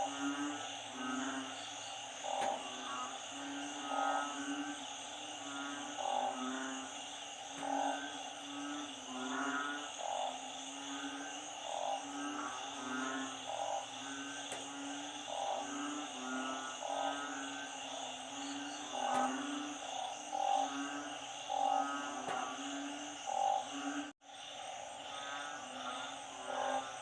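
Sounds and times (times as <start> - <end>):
low frog calls: 0.0 - 27.0
steady high frog chorus: 0.0 - 27.0
trilled frog calls: 0.0 - 27.0.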